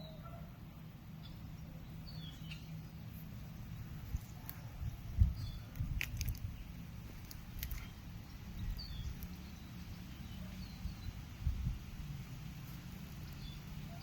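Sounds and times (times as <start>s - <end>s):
steady low rumble: 0.8s - 14.0s
faint bird chirps: 1.2s - 5.8s.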